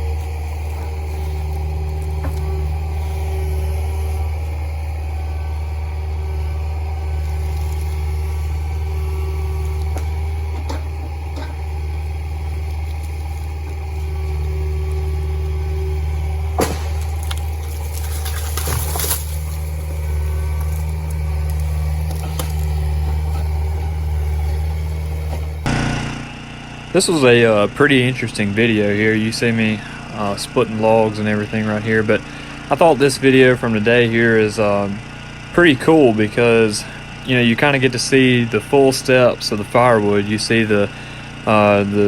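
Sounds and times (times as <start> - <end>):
machine engine running steadily: 0.0 - 42.0
sharp cracks or knocks: 16.6 - 19.3.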